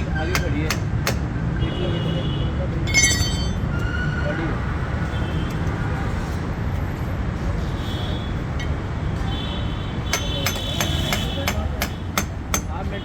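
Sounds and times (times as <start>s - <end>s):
metal hammer strikes: 2.9s - 3.7s.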